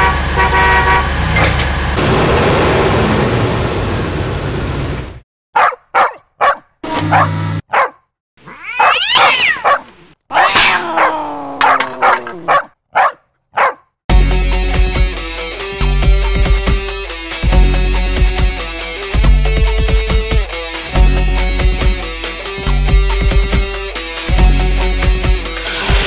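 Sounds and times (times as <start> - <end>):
animal barks and yelps: 5.6 - 13.9.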